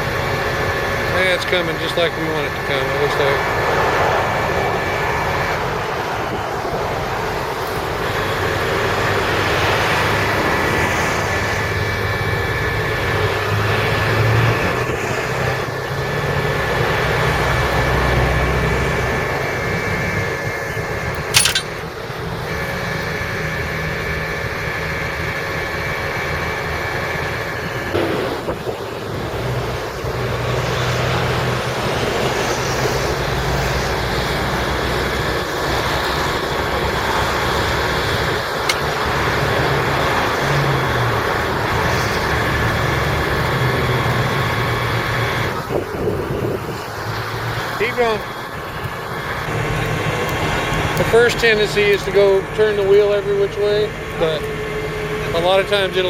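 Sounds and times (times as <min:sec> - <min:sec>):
hydraulic winch whine: 0:21.1 - 0:21.8
sharp click: 0:21.2 - 0:21.8, 0:38.7 - 0:39.0.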